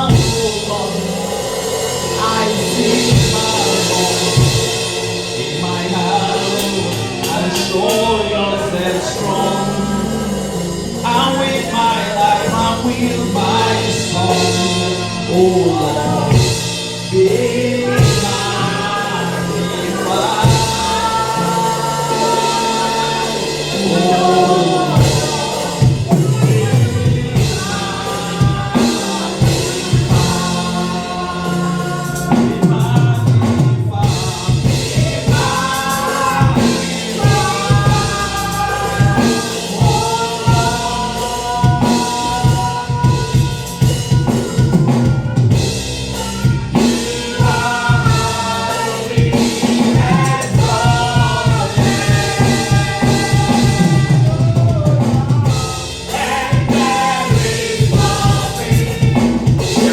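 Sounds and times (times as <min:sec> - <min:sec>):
drum kit steady beat: 0:00.0 - 0:59.9
voices singing held notes: 0:00.0 - 0:59.9.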